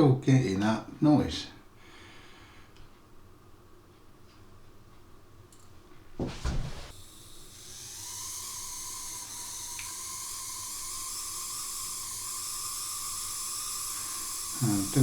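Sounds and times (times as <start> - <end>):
model train motor whining: 6.9 - 15.0.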